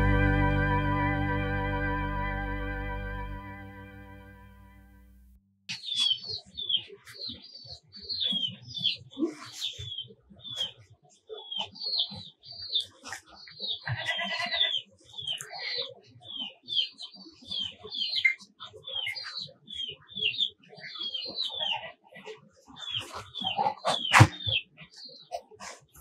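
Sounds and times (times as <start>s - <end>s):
small birds chirping: 5.7s - 26.0s.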